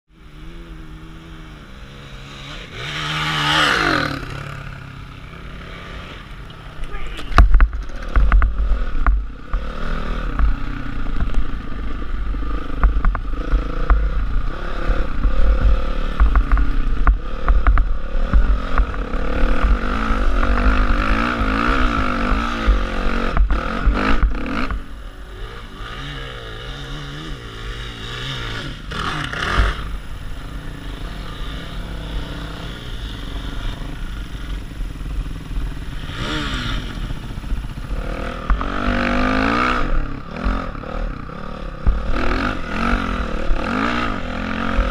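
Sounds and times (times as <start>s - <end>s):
dirt bike engine revving: 0.1s - 44.9s.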